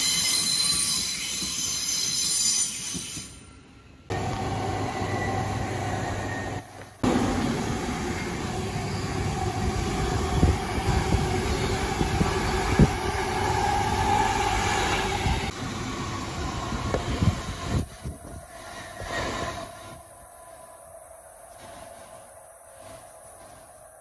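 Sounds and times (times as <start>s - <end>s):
train passing rumble: 4.1s - 24.0s.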